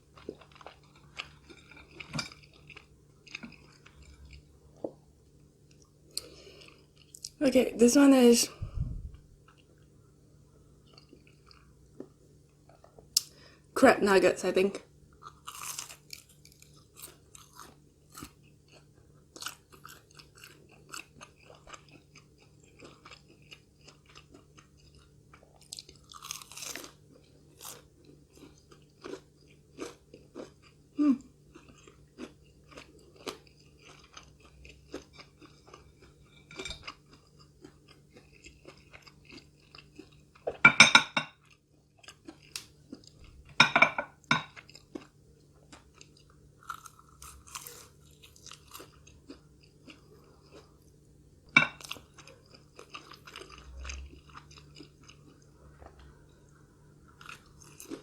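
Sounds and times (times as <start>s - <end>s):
crunchy chewing: 0.0s - 5.0s, 15.2s - 40.6s, 41.4s - 43.4s, 44.5s - 51.0s, 51.8s - 56.0s, 57.1s - 58.0s.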